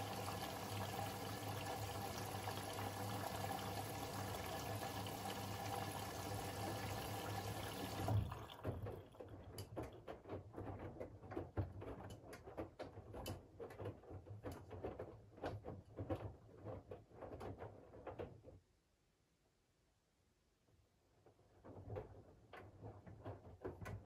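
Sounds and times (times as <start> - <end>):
washing machine drum turning: 0.0 - 8.5
water inflow: 0.0 - 9.9
laundry tumbling and water sloshing: 0.0 - 10.3.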